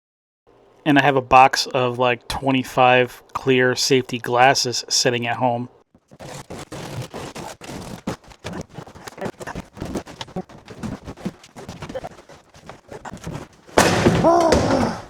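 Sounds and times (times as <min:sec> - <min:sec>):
demolition knocks and scraping: 0:08.4 - 0:15.0.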